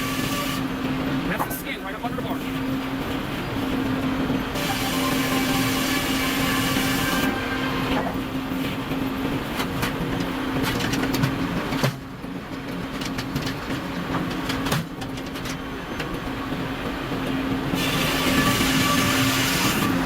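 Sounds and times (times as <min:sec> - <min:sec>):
machinery humming: 0:00.0 - 0:12.6.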